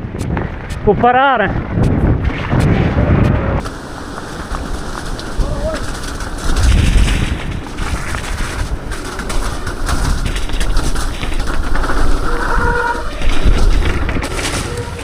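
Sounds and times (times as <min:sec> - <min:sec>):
bike tyre and chassis rattle: 0:00.0 - 0:15.0
wind buffeting microphone: 0:00.0 - 0:15.0.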